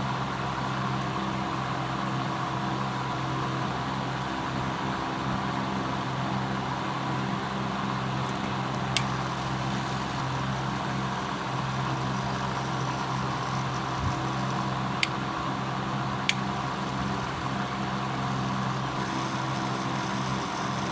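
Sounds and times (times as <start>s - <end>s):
small electric motor humming: 8.2s - 20.9s
sharp clicks: 8.3s - 10.3s, 11.2s - 15.2s, 16.2s - 20.9s.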